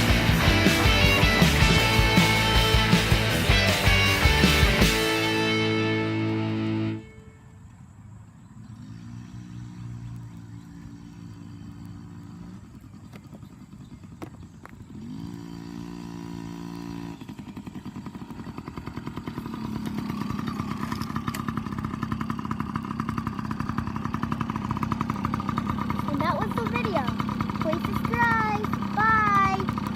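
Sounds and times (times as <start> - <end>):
dirt bike engine running: 0.0 - 29.9.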